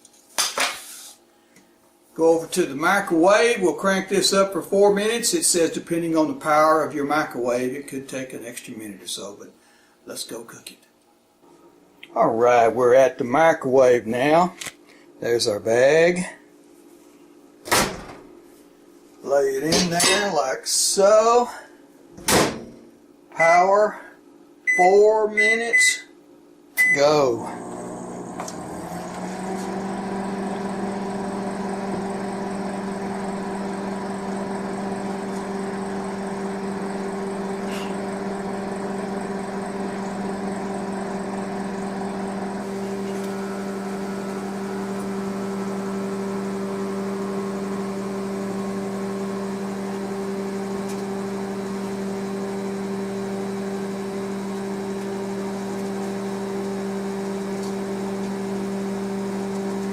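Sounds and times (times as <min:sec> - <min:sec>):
microwave oven humming: 0:26.7 - 0:59.9.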